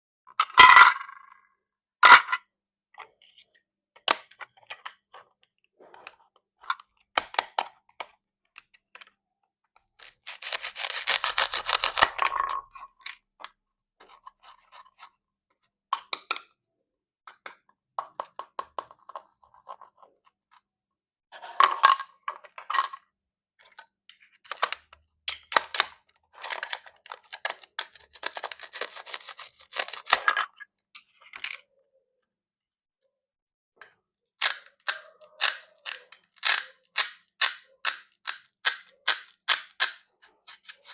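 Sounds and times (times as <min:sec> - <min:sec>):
knife cutting plastic toy fruit: 0:06.8 - 0:08.2, 0:10.0 - 0:13.1, 0:14.0 - 0:15.2, 0:24.3 - 0:30.6, 0:34.4 - 0:40.9.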